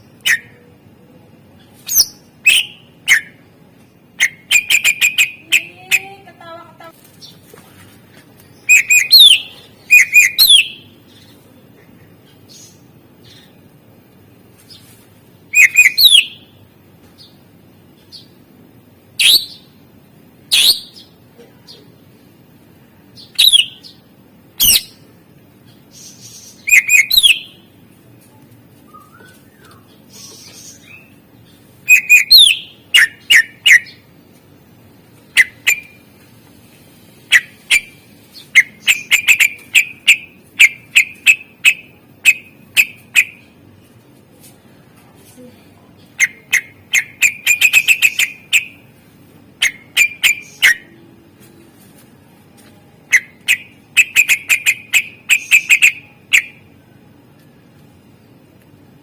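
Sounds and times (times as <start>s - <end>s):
bird singing varied whistles: 1.9s - 3.4s, 8.7s - 10.8s, 15.6s - 16.4s, 23.4s - 23.8s, 26.6s - 27.5s, 28.9s - 29.8s, 31.9s - 33.9s.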